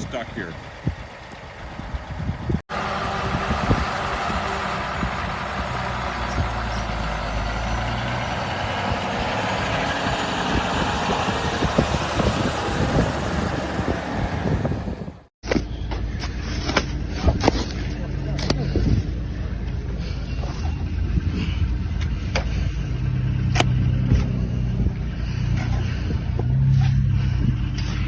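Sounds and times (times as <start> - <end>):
large vehicle engine running: 0.0 - 28.0
dense rushing noise: 7.4 - 15.3.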